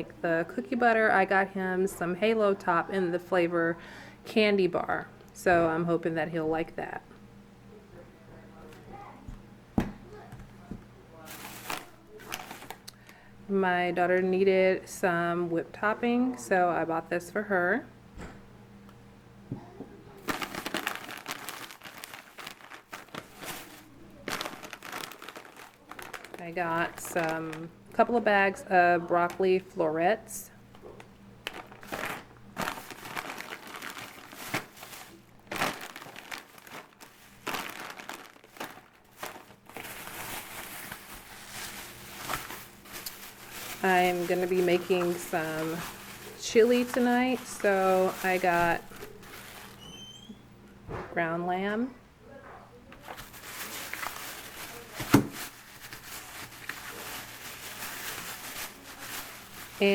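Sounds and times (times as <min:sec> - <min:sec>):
packaging rustling: 0:11.2 - 0:12.9, 0:20.2 - 0:27.6, 0:31.4 - 0:50.2, 0:52.9 - 0:59.9
plastic bags crinkling: 0:11.2 - 0:13.1, 0:20.2 - 0:28.5, 0:30.9 - 0:50.3, 0:53.0 - 0:59.9
sharp knock of package set down: 0:55.0 - 0:55.4.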